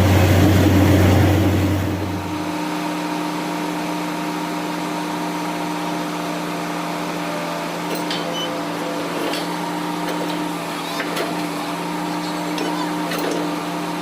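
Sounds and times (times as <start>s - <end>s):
deep loud drone: 0.0s - 2.6s
drilling rig engine humming: 0.0s - 2.8s.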